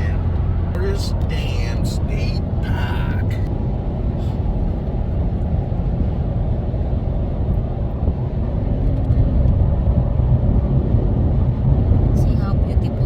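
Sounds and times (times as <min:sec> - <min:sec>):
faint hum: 0:00.0 - 0:06.7
car driving on road: 0:00.0 - 0:13.0.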